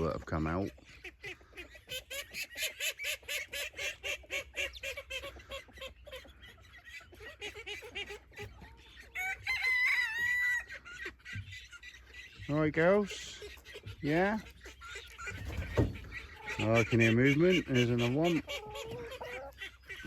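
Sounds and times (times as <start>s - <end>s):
hens clucking: 0.0s - 20.0s.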